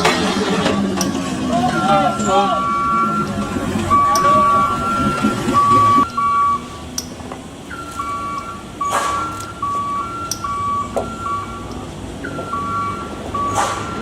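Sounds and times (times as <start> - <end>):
engine and road rumble: 0.0 - 14.0
electronic beeper melody: 0.9 - 14.0
sharp clicks: 6.9 - 12.6.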